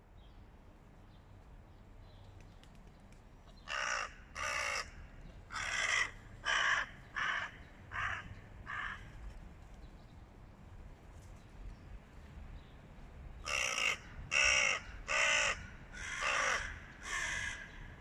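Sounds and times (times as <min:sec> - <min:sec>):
crows cawing: 0:03.6 - 0:09.1, 0:13.4 - 0:18.0.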